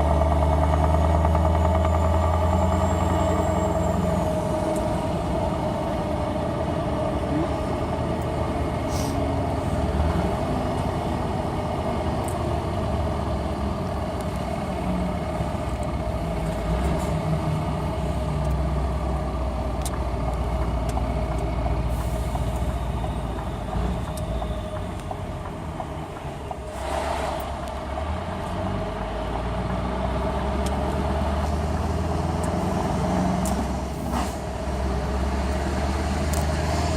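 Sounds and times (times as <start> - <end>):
diesel truck engine idling: 0.0 - 26.8.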